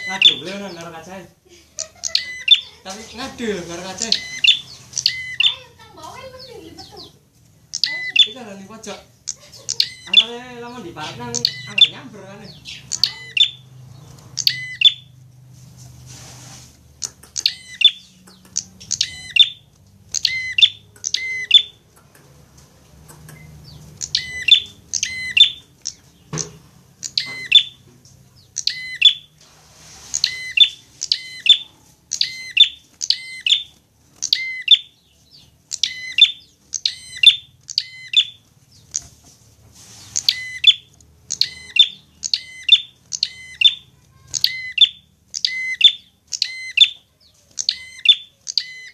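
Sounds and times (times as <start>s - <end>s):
bird chirping sharply: 0.0s - 0.8s, 1.8s - 15.2s, 17.0s - 21.8s, 23.1s - 29.4s, 30.0s - 39.1s, 39.9s - 48.9s.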